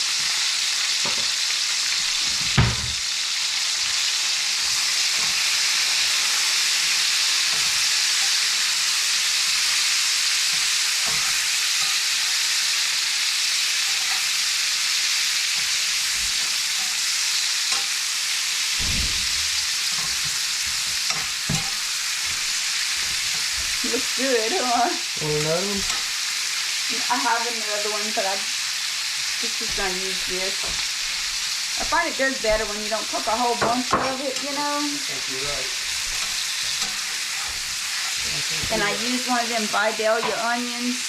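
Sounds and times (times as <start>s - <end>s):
vegetables sizzling in a pan: 0.0s - 41.0s
sharp knock: 18.8s - 19.6s
low thumps: 18.8s - 19.8s.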